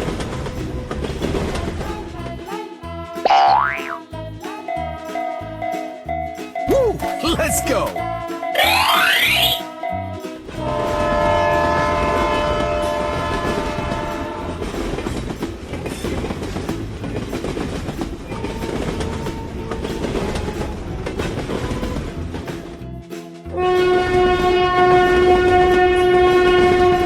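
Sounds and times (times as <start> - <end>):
train running on rails: 0.0 - 3.2, 4.1 - 27.0
train horn: 10.5 - 15.0, 23.5 - 27.0.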